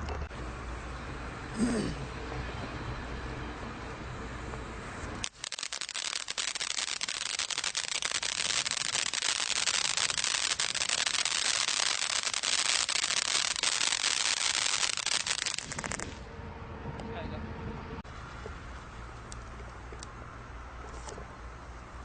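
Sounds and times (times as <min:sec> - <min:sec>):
firework crackling: 0:05.2 - 0:16.2.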